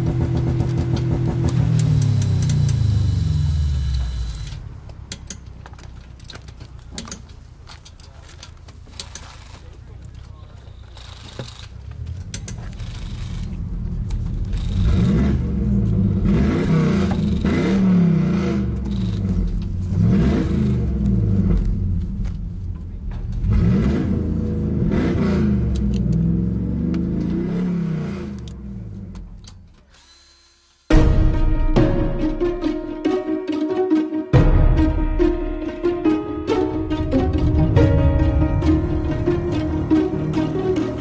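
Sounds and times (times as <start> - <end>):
car engine revving: 0.0 - 4.8, 11.0 - 29.5, 35.0 - 41.0
music: 30.9 - 41.0.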